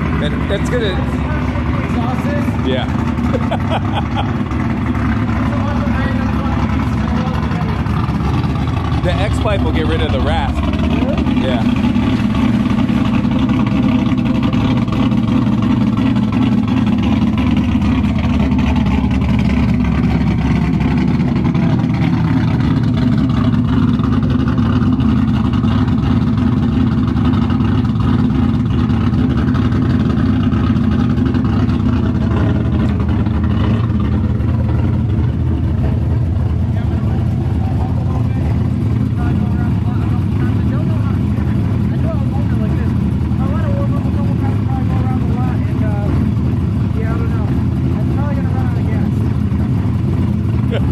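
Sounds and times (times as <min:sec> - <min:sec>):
raspy engine idling: 0:00.0 - 0:50.9.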